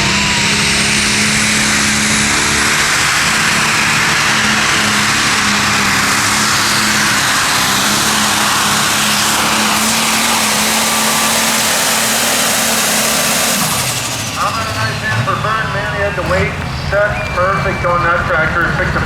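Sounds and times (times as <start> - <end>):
tractor engine running flat out: 0.0 - 19.0.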